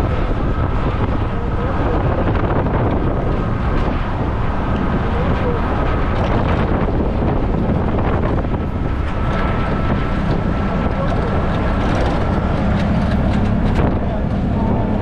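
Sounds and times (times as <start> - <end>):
moving vehicle rumble: 0.0 - 15.0
wind buffeting microphone: 0.0 - 15.0.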